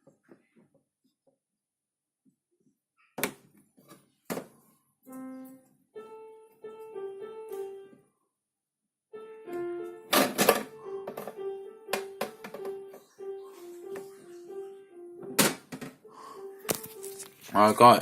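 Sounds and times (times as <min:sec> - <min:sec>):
keyboard-like tune: 0:05.1 - 0:08.0, 0:09.1 - 0:17.8.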